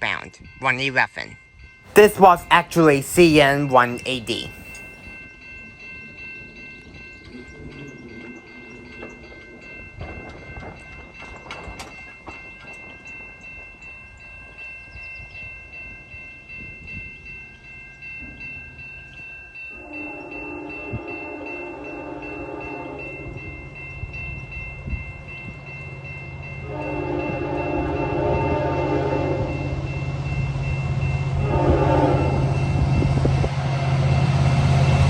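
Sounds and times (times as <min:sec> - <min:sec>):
crossing bell ringing: 0:01.4 - 0:34.4
train horn blowing: 0:19.8 - 0:23.0, 0:26.6 - 0:29.5, 0:31.4 - 0:32.6.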